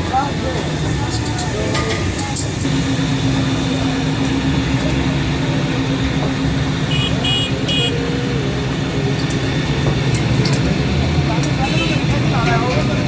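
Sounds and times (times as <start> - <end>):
car engines running: 0.0 - 13.0
vehicle horn beeps: 6.8 - 8.0, 11.6 - 12.2.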